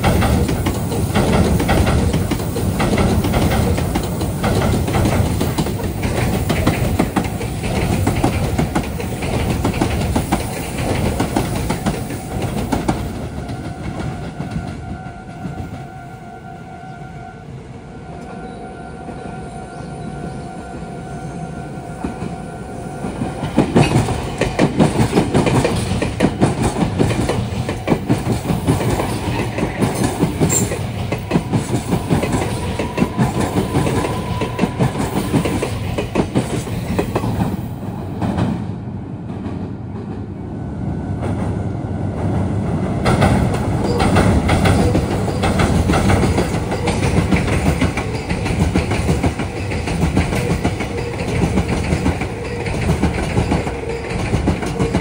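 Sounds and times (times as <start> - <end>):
train wheels clattering over rails: 0.0 - 15.9, 23.0 - 40.3, 41.2 - 55.0.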